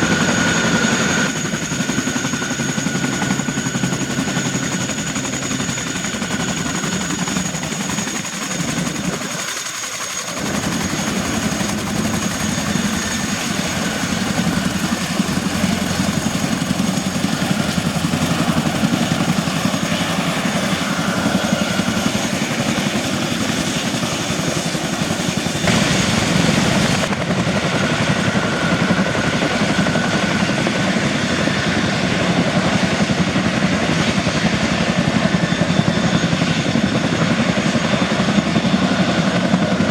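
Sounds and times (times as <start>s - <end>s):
helicopter blades beating: 0.0s - 39.9s
high engine whine: 25.5s - 29.8s.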